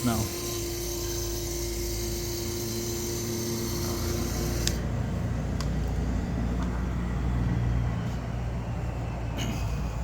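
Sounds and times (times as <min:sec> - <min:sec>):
electric water pump humming: 0:00.0 - 0:05.8.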